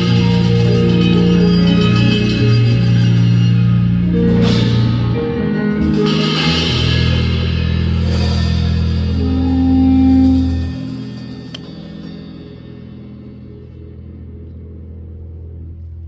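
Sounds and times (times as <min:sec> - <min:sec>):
jazz piano chords: 0:00.0 - 0:16.0
low bass line: 0:00.0 - 0:16.0
violin long notes: 0:08.8 - 0:13.6.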